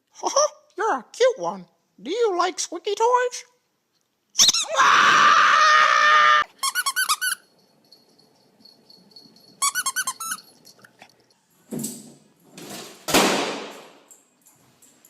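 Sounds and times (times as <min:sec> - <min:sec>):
squeaky dog toy squeaking: 0:04.4 - 0:04.6, 0:06.6 - 0:07.5, 0:09.6 - 0:10.6.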